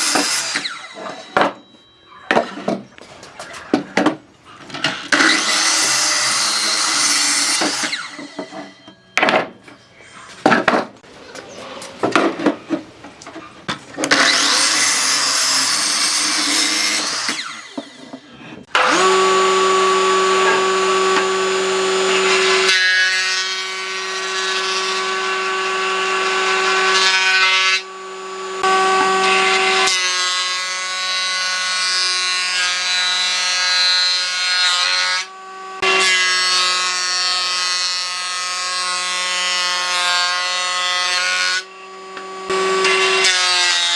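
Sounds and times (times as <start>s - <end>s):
power tool motor whining: 14.1s - 22.7s.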